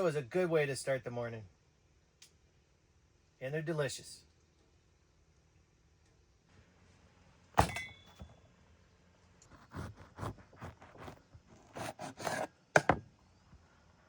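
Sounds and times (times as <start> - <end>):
hard metallic clink: 7.6 - 8.3.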